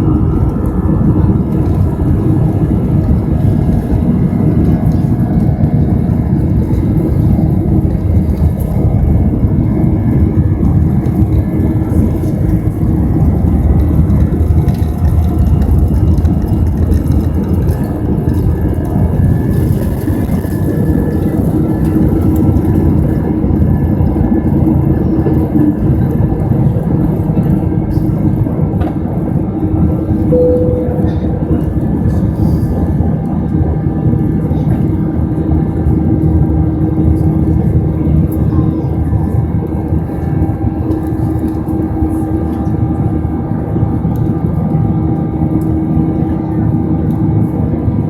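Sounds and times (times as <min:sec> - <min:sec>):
jet engines from inside cabin: 0:00.0 - 0:48.0.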